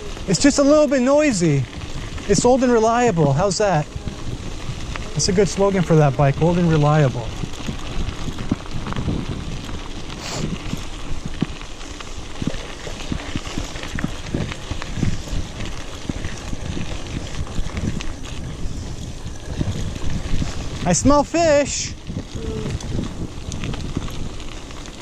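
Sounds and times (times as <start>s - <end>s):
bike rattling over rough trail: 0.0s - 25.0s
tyre rumble: 1.2s - 25.0s
clicks and knocks from bike: 7.3s - 20.8s.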